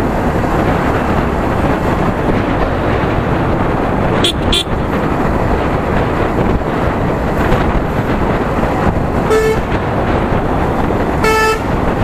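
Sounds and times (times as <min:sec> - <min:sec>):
wind and road noise: 0:00.0 - 0:12.0
vehicle horn beep: 0:04.2 - 0:04.8, 0:09.3 - 0:09.7, 0:11.2 - 0:11.7.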